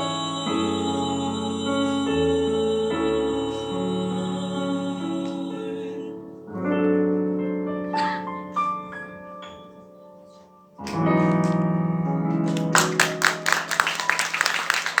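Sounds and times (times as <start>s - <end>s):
piano notes and chord: 0.0s - 13.8s
audience applause: 12.4s - 15.0s.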